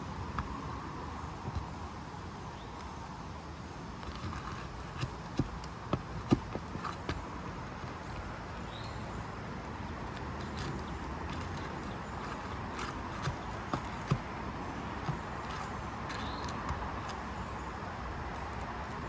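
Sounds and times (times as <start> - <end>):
tool knocking on shingles: 4.0 - 8.2, 10.1 - 17.2.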